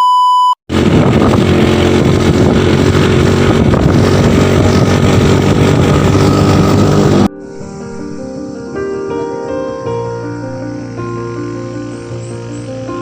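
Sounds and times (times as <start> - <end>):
vehicle engine running loudly: 0.7 - 8.6.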